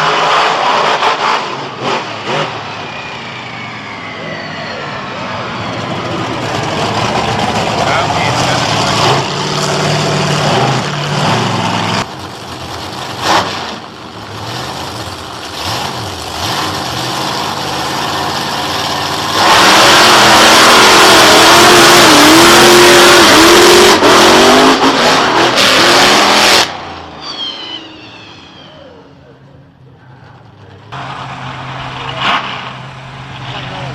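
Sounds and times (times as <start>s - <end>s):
monster truck engine revving: 0.0s - 33.9s.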